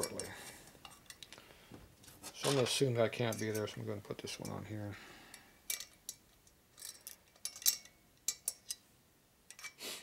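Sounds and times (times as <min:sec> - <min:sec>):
small metal clicks and taps: 0:05.3 - 0:08.8.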